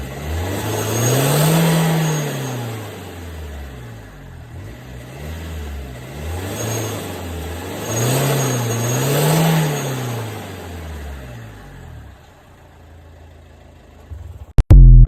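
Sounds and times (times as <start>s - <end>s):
diesel engine revving: 0.0s - 12.2s.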